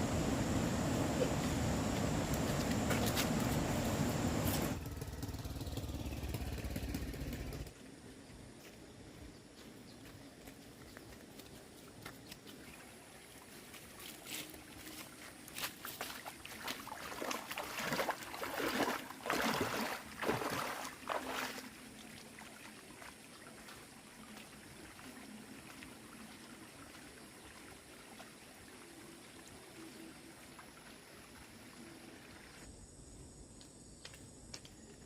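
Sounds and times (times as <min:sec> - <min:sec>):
water splashing and sloshing: 0:12.0 - 0:32.7.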